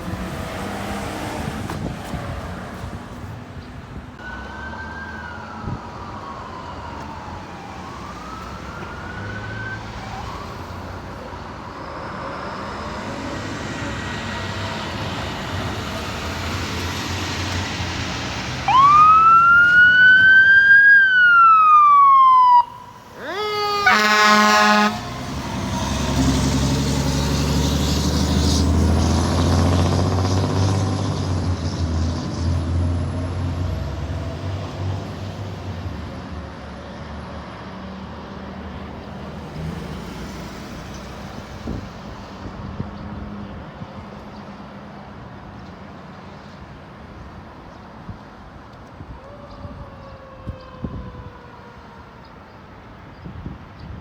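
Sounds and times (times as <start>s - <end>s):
fire truck siren wailing: 4.2s - 11.8s, 13.8s - 31.5s, 49.0s - 52.5s
loud horn blast: 23.2s - 25.2s.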